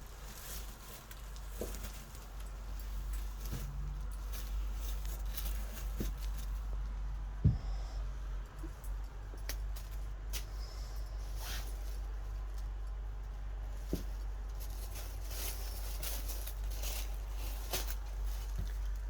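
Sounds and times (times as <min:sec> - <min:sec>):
steady low hum: 0:00.0 - 0:19.0
handbag handling scratches and knocks: 0:00.3 - 0:06.8.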